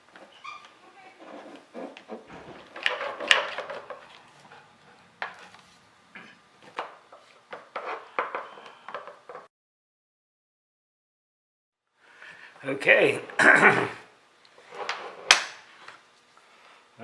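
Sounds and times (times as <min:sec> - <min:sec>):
wood and tools clattering on workbench: 0:01.6 - 0:04.2.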